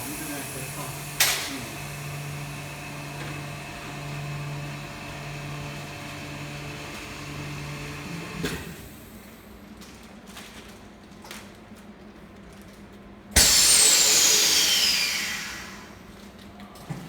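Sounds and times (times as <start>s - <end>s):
vacuum pump humming: 0.0s - 8.8s, 13.4s - 16.0s.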